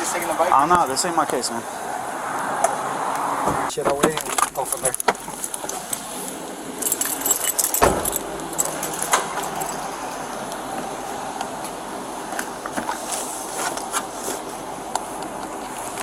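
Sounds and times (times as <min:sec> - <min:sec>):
steady background noise: 0:00.0 - 0:16.0
metal jingling and clinking: 0:06.8 - 0:10.0
sharp thump: 0:07.8 - 0:08.4.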